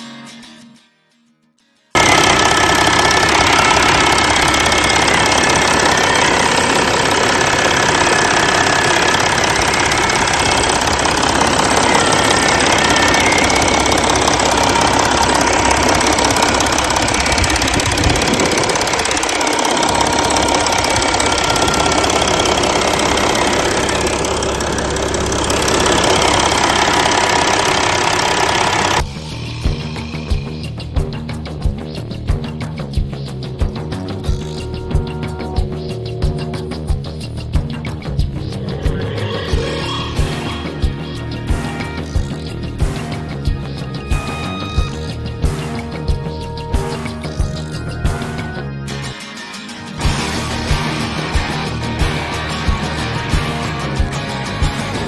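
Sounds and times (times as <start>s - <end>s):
diesel engine idling: 2.0s - 29.0s.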